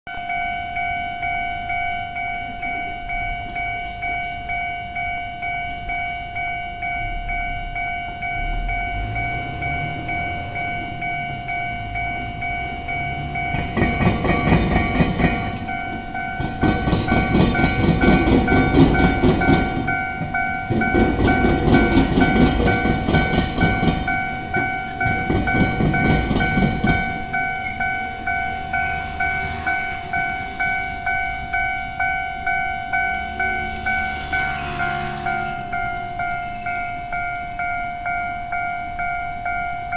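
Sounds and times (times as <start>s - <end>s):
level-crossing bell ringing: 0.1s - 39.9s
train motor hum: 8.6s - 38.2s
train wheels clattering over rails: 9.0s - 32.0s, 32.7s - 37.7s.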